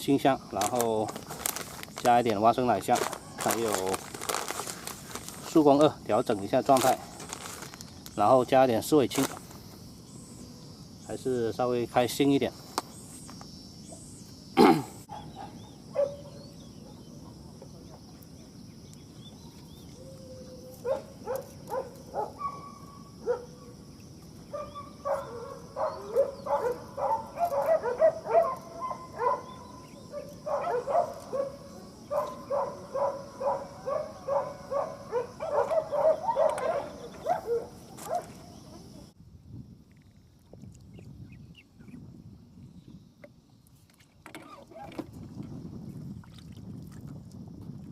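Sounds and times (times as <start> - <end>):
high hum of insects: 0.0 - 47.9
dogs barking: 15.1 - 17.1, 20.8 - 23.6, 24.5 - 38.4.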